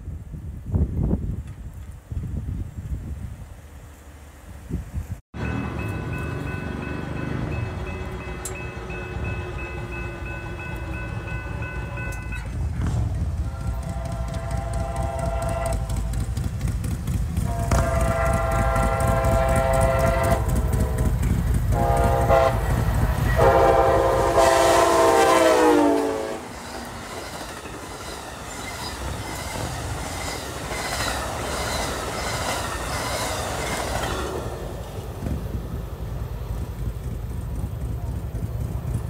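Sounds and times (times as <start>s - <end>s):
train cars rumbling: 0.3s - 39.0s
train horn blasts: 5.4s - 12.5s, 13.4s - 16.3s, 17.4s - 26.6s
wheels clacking over rail joints: 5.4s - 24.6s, 25.9s - 39.0s.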